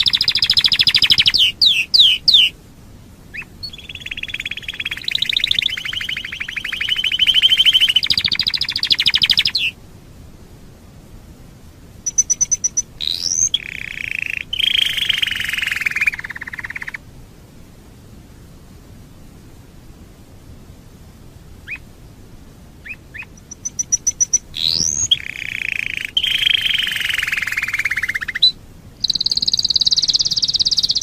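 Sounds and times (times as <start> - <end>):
canary singing trills: 0.0 - 2.6, 3.3 - 9.8, 12.0 - 17.0, 21.6 - 21.9, 22.8 - 31.0.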